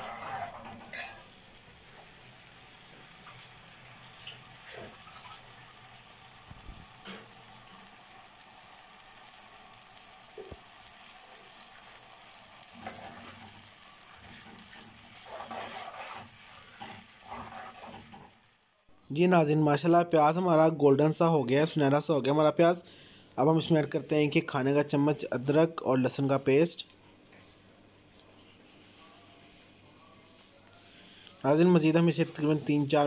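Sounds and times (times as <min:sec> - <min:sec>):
onion paste sizzling in hot oil: 0:00.0 - 0:19.1.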